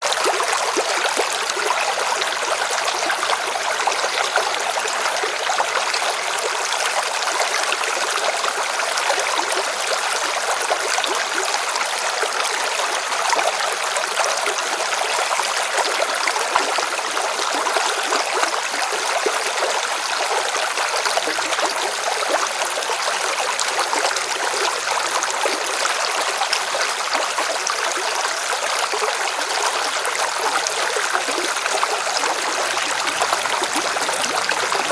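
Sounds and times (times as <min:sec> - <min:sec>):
river water rushing over rocks: 0:29.9 - 0:34.9.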